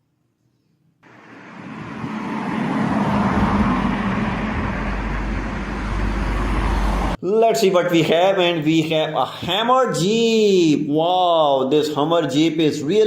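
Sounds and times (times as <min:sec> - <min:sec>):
road vehicle noise: 0:01.0 - 0:07.2.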